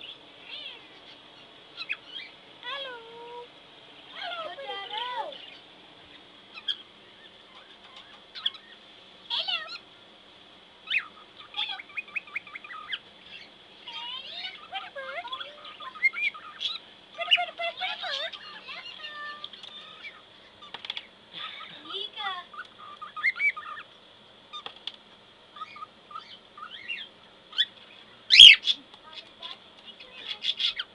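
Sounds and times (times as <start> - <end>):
cockatiel chirping: 1.8 - 2.4, 6.5 - 8.8, 10.8 - 13.5, 14.2 - 17.5, 22.5 - 23.9, 25.6 - 27.7, 28.3 - 28.8
cockatiel chirping and whistling: 10.8 - 11.2, 22.6 - 23.8, 25.6 - 27.7, 28.3 - 28.8.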